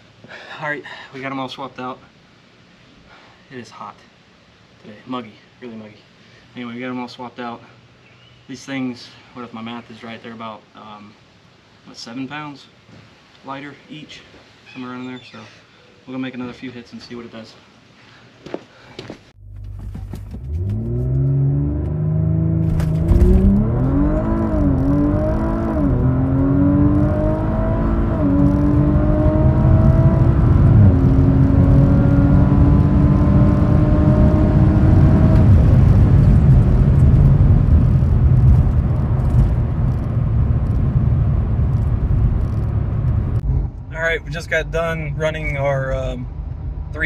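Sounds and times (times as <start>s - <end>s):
car engine at full throttle: 19.4s - 45.6s
wind and tyre noise: 19.9s - 47.0s.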